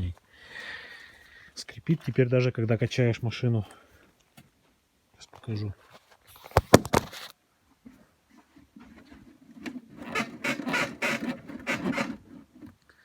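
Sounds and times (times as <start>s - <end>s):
car suspension squeaking: 9.6s - 12.7s.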